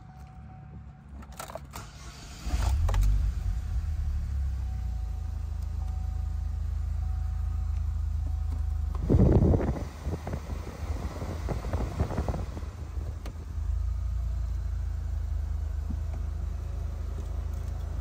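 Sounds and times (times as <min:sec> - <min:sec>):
car engine starting and idling: 0:00.1 - 0:18.0
ignition clicks: 0:01.2 - 0:03.7, 0:07.6 - 0:13.5.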